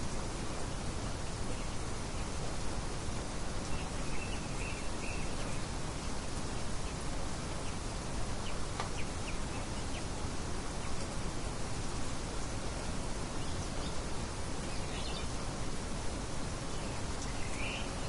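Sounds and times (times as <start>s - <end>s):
steady wind-like noise: 0.0s - 18.0s
faint bird chirps: 3.6s - 11.1s, 13.3s - 15.4s, 16.6s - 18.0s.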